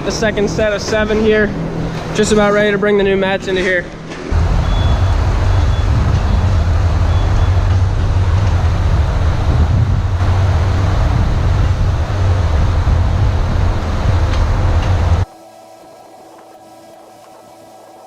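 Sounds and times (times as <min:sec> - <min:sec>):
vehicle engine running: 0:04.3 - 0:15.3.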